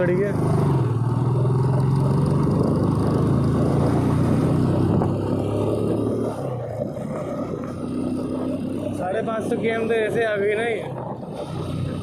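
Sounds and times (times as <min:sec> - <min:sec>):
motorcycle engine running: 0:00.0 - 0:12.0
wind noise on microphone: 0:02.0 - 0:08.9, 0:10.6 - 0:12.0.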